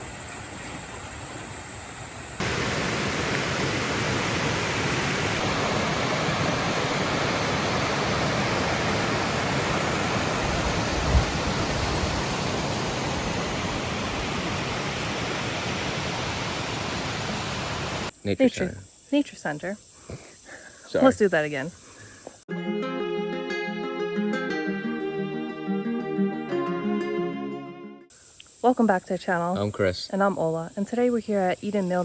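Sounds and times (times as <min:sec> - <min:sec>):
rushing flowing water: 0:02.4 - 0:18.1.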